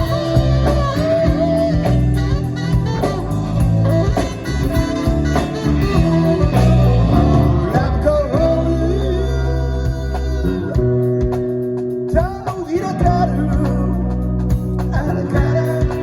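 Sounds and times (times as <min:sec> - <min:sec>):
bass: 0:00.0 - 0:16.0
drums: 0:00.0 - 0:16.0
electric guitars: 0:00.0 - 0:16.0
person singing: 0:06.4 - 0:14.2, 0:14.8 - 0:16.0.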